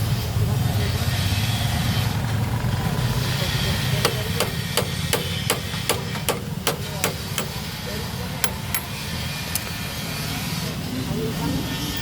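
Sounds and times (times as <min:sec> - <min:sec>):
low engine and traffic rumble: 0:00.0 - 0:12.0
light hammer taps on metal: 0:04.0 - 0:07.6, 0:08.4 - 0:08.9.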